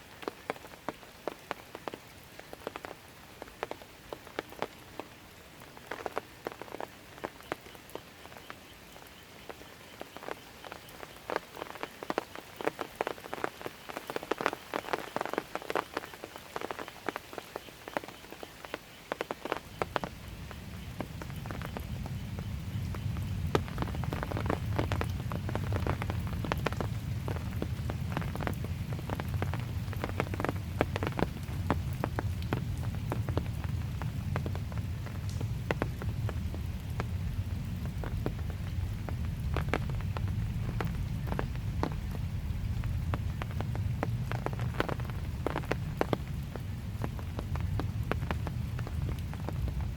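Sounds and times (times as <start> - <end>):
light rain falling: 0.0 - 49.9
steady low rumble: 19.8 - 49.9.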